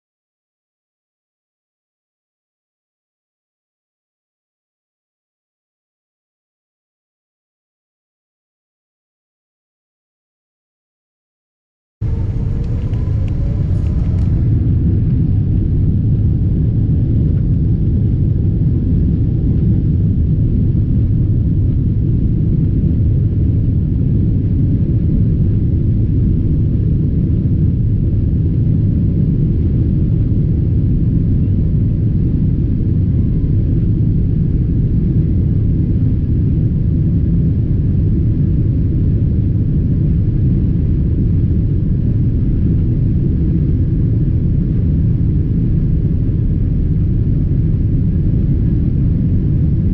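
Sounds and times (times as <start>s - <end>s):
boat engine rumble: 12.0s - 16.2s.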